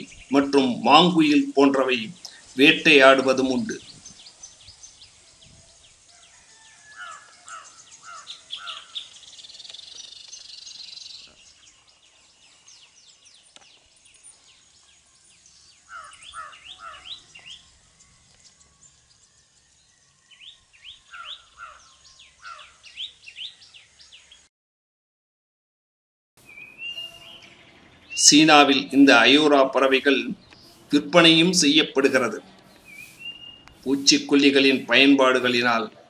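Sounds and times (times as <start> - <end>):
high bird trill: 0.0 - 11.9, 12.6 - 24.4, 26.4 - 35.8
bird calling sharp notes: 7.0 - 9.2, 15.9 - 17.7, 20.8 - 23.6, 26.4 - 35.8.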